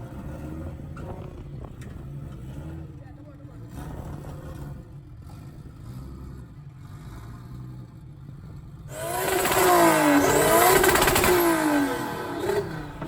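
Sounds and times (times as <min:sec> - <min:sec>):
car engine running low: 0:00.0 - 0:13.0
loud engine revving: 0:08.9 - 0:13.0.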